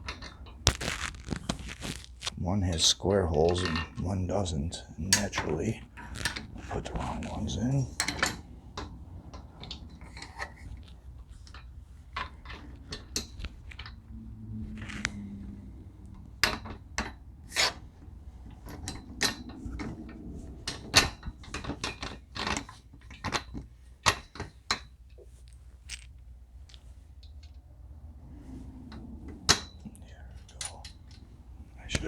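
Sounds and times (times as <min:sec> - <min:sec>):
metal parts clicking and clinking: 0:20.7 - 0:27.6.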